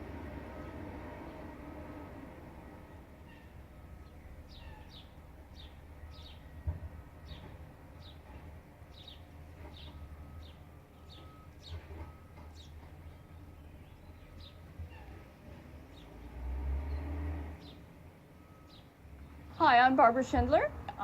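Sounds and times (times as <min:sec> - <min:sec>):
small bird chirping: 0:03.3 - 0:06.5.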